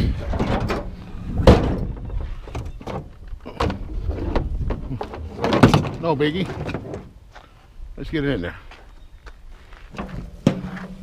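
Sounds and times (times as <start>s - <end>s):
wind rumbling on microphone: 0.0s - 5.9s.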